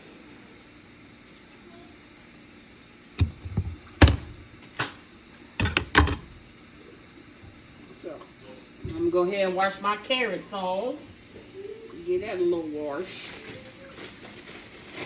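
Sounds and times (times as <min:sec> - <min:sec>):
kitchen items knocking on countertop: 0:03.2 - 0:04.9, 0:05.6 - 0:06.4.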